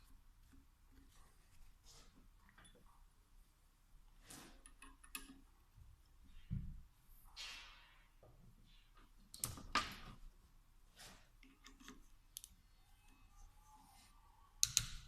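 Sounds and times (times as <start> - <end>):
tools and small parts clicking: 4.6 - 5.5, 14.6 - 15.0.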